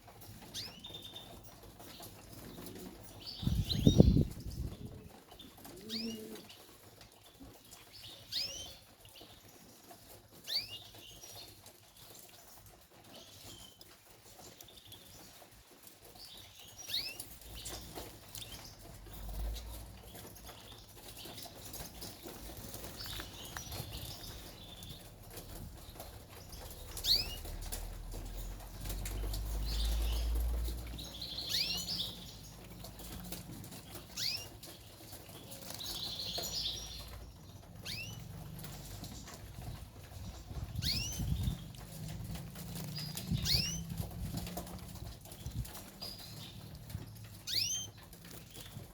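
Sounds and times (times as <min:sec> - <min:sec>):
canaries chirping: 0:00.0 - 0:48.9
wing fluttering: 0:21.0 - 0:48.9.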